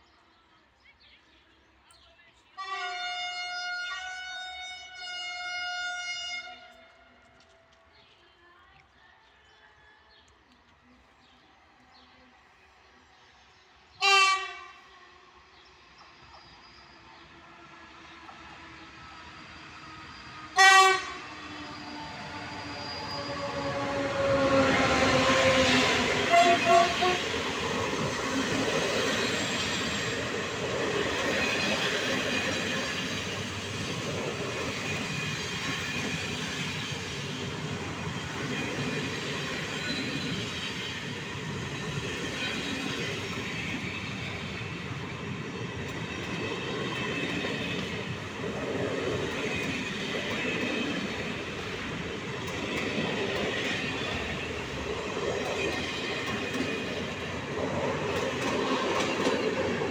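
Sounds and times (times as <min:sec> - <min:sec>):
train wheels rumbling on rails: 0:15.9 - 0:59.9
high wheel squeal: 0:21.4 - 0:24.4.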